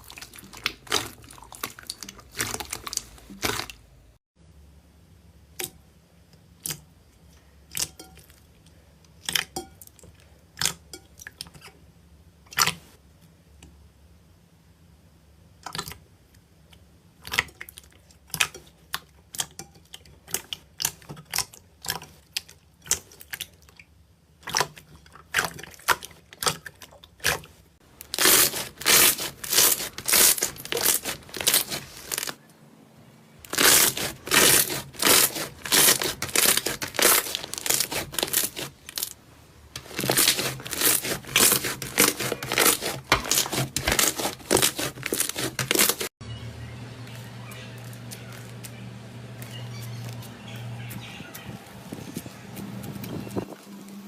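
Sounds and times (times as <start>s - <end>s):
slime squishing and popping: 33.5s - 39.1s.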